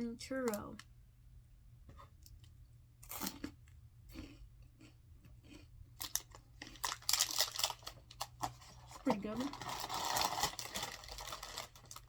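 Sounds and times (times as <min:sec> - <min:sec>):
chewing crunchy snack: 0:02.3 - 0:09.0.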